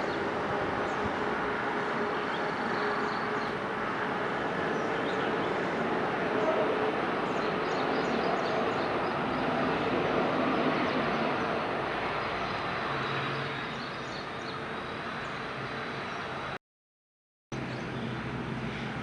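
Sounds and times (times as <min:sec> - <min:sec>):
turboprop engines droning: 0:00.0 - 0:16.6, 0:17.6 - 0:19.0.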